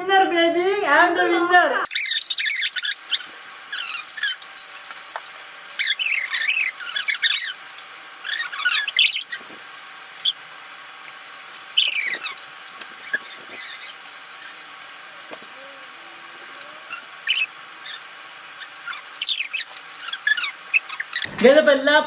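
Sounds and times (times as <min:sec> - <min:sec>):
sped up squeaky voices: 0:01.8 - 0:04.4, 0:11.7 - 0:21.3.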